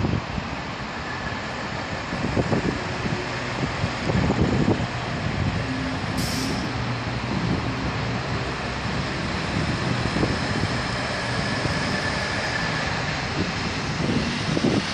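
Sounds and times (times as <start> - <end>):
train rumbling: 0.0 - 14.9
short hiss: 6.2 - 6.7.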